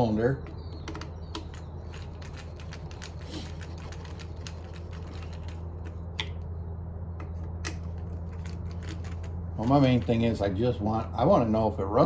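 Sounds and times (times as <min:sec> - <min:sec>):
steady low hum: 0:00.0 - 0:12.0
tools and metal parts clicking: 0:00.8 - 0:06.0, 0:07.7 - 0:10.5.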